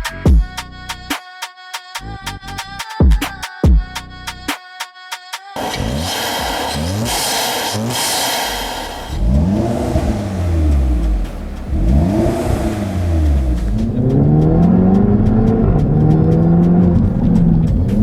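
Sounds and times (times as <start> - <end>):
music: 0.0 - 6.7, 9.2 - 18.0
turbocharged car engine revving: 5.6 - 18.0.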